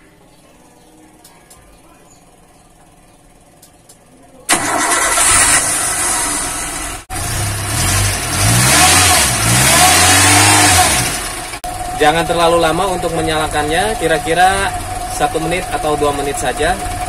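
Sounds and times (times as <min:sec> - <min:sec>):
car engine starting and revving: 0:04.5 - 0:17.0.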